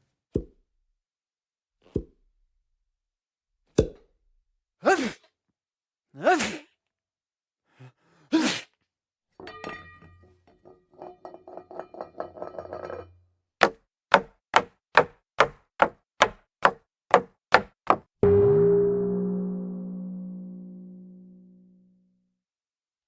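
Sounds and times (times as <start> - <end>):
sharp evenly spaced knocks: 13.6 - 18.1
ringing gong-like tone: 18.2 - 22.0.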